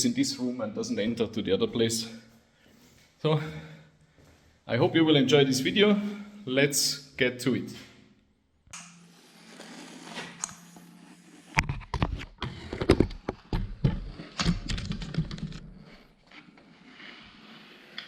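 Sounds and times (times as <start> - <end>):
objects clicking and knocking: 11.6 - 16.0.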